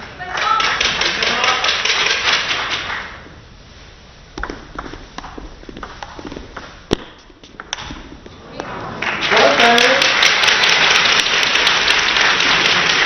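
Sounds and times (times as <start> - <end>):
spectators clapping: 0.0 - 3.2, 9.0 - 13.0
table tennis ball taps: 4.4 - 7.9.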